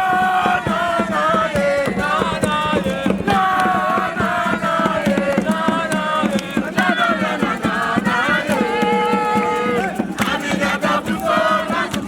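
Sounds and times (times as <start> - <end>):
group chanting in unison: 0.0 - 12.0
percussive beat: 0.0 - 12.0.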